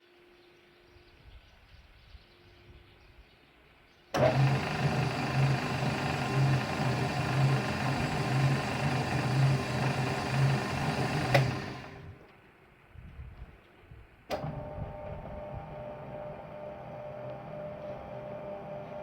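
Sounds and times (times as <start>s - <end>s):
food mixer machine whirring: 4.2s - 12.2s, 14.4s - 19.0s.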